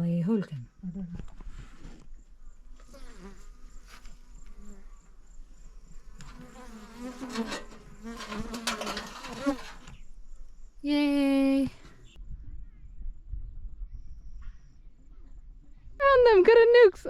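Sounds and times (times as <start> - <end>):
bees buzzing: 5.8 - 10.0.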